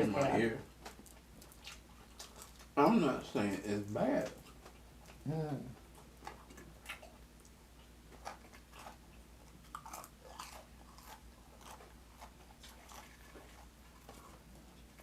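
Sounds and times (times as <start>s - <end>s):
chewing and mouth smacks: 0.2s - 2.8s, 4.2s - 5.2s, 5.8s - 15.0s.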